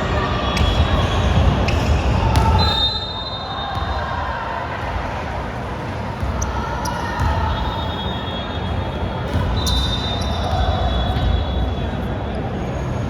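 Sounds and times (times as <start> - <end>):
sneakers squeaking: 0.0 - 12.9
hum of voices in echoing hall: 0.0 - 13.0
basketball bouncing on court: 0.6 - 2.8, 3.7 - 4.0, 6.1 - 7.7, 9.3 - 11.4.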